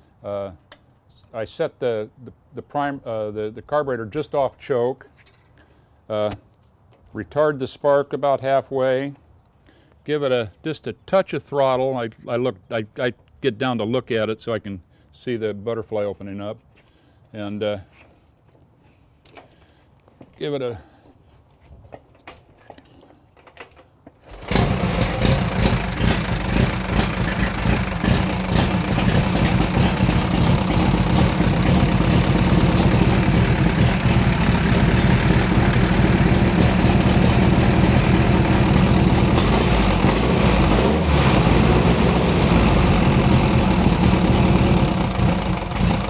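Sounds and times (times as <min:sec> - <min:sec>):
motorcycle engine running: 0:24.4 - 0:46.0.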